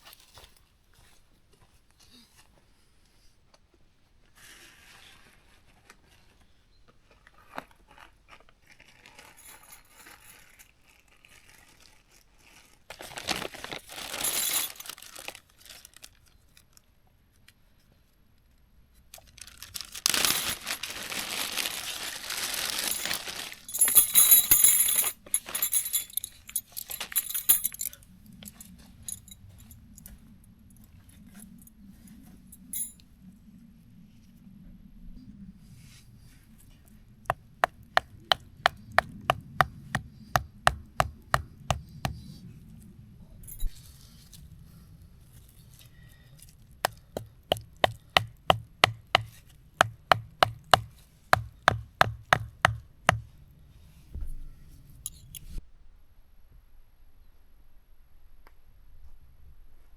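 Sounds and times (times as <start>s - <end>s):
nylon fabric rustling: 20.1s - 24.0s
metallic clinks of tent poles: 22.9s - 29.4s.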